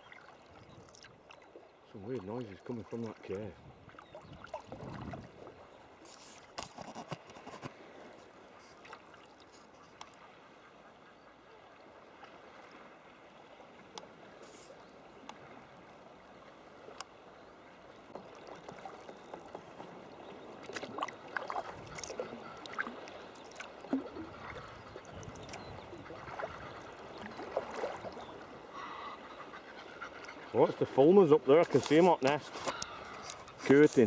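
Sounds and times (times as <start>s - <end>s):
kayak paddle dipping: 0.0s - 34.0s
water lapping at hull: 0.0s - 34.0s
seabirds cackling: 9.5s - 12.4s, 16.0s - 34.0s.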